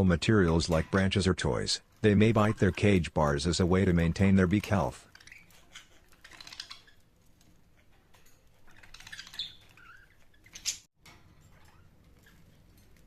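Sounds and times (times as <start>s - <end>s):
birds pecking at a toy: 4.2s - 13.0s
budgies chirping: 8.7s - 10.9s.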